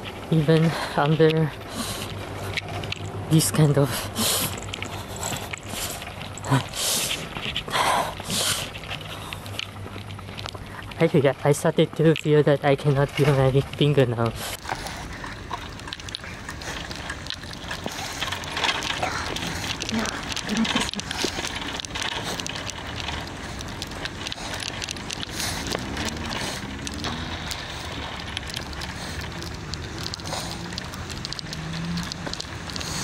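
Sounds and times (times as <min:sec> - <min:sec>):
bicycle tyres on snow: 0:00.0 - 0:33.0.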